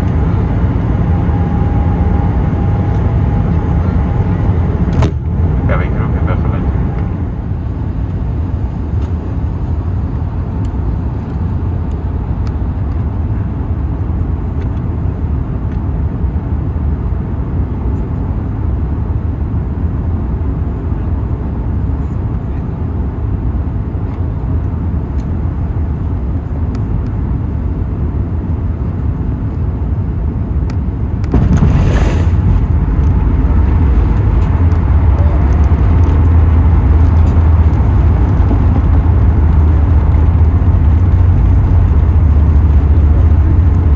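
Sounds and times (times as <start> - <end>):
aircraft cabin rumble: 0.0 - 43.9
brief rushing noise: 31.3 - 35.4.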